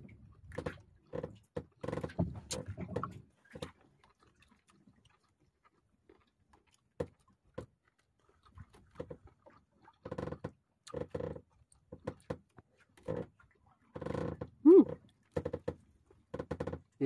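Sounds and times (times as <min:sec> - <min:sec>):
man chewing and lip-smacking: 0:03.5 - 0:13.9.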